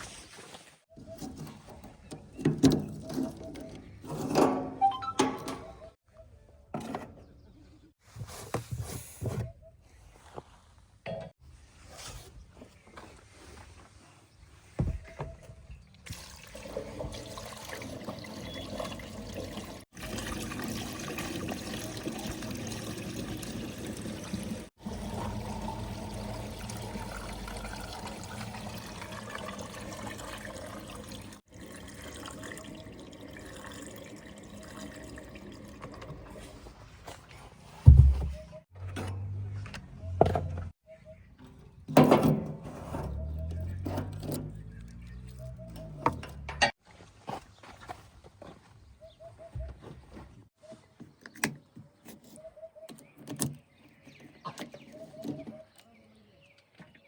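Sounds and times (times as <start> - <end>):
loose soil pouring: 16.1 - 36.8.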